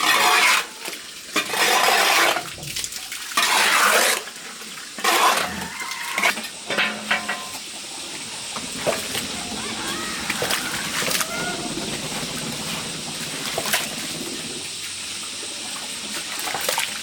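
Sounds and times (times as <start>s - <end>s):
water splashing and pouring: 0.0s - 17.0s
dishes clinking: 6.7s - 7.6s.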